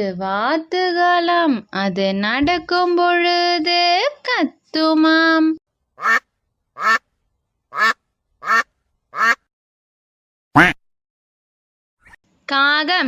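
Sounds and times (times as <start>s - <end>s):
duck quacking: 6.0s - 7.0s, 7.7s - 9.5s, 10.6s - 10.8s.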